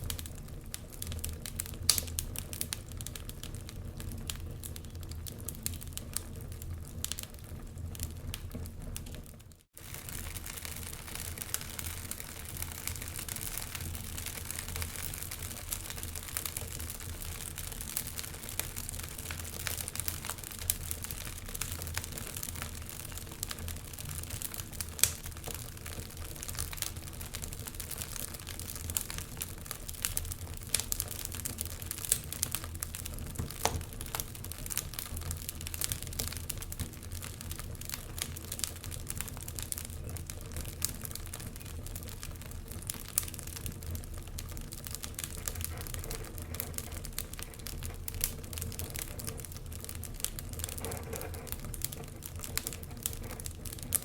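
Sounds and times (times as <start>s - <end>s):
fireplace logs crackling and popping: 0.0s - 54.0s
low background of fire: 0.0s - 54.0s.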